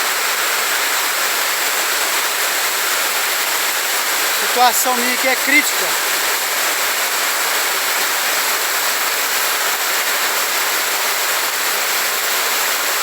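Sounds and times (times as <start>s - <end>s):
heavy rain: 0.0s - 13.0s
water rushing along a street: 0.0s - 13.0s.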